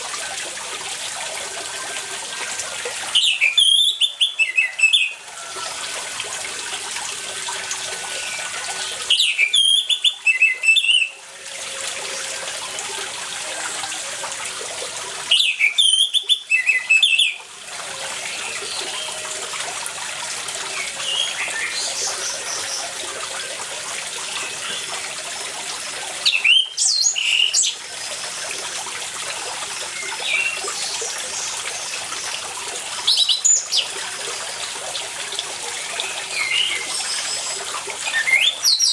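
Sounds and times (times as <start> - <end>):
running water trickling: 0.0 - 38.9.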